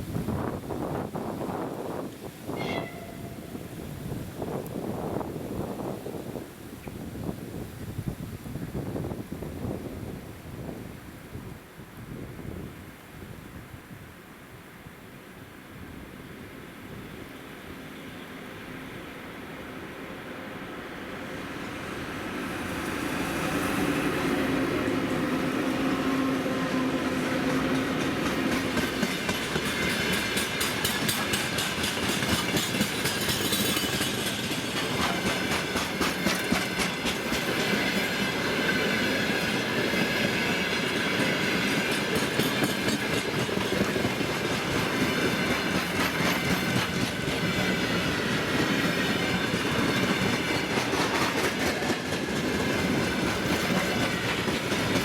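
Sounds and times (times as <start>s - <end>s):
freight train rumble: 0.0s - 12.8s, 15.7s - 55.0s
wheels clicking over rail joints: 27.4s - 55.0s.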